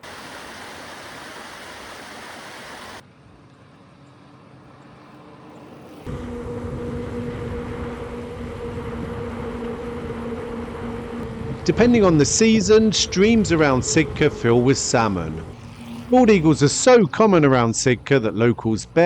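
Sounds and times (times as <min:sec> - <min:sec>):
motor hum with low rumble: 0:02.8 - 0:18.4
steady rushing noise: 0:06.0 - 0:18.0.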